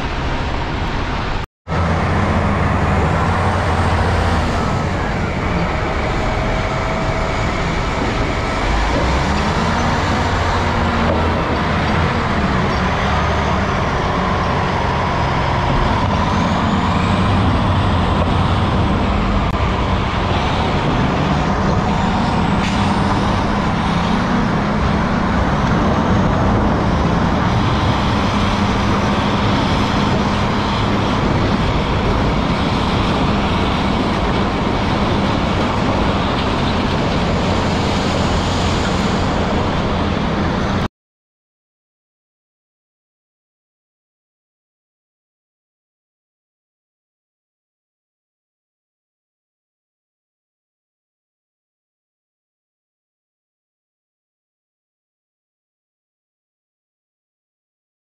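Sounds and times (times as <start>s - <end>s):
motor vehicle humming: 0.0s - 40.9s.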